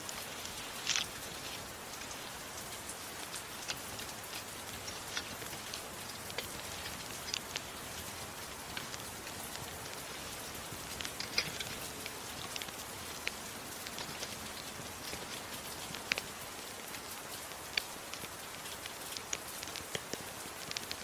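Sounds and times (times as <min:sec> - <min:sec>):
steady rain hiss: 0:00.0 - 0:21.0
wood fire crackling and popping: 0:00.0 - 0:21.0.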